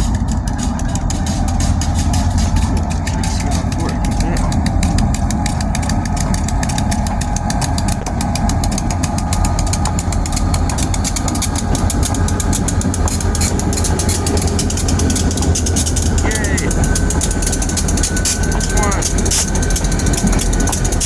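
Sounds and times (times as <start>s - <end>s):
diesel locomotive engine rumble: 0.0s - 21.0s.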